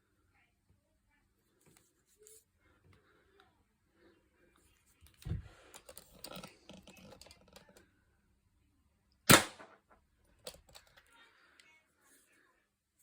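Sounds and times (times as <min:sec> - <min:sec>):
air pistol shot: 0:09.3 - 0:09.8
air pistol clicks and knocks: 0:10.4 - 0:10.9.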